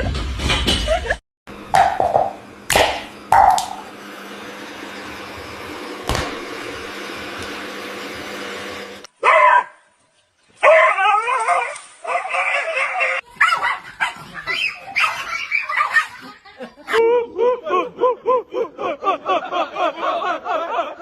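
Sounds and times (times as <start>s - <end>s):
dog crying: 10.6s - 16.3s.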